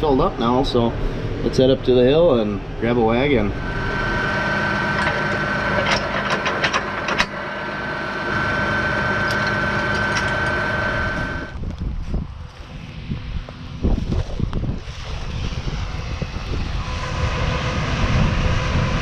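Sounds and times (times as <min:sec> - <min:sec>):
high whine: 0:00.0 - 0:19.0
tractor engine running: 0:00.0 - 0:19.0
sharp clicks and rattles: 0:03.7 - 0:11.8.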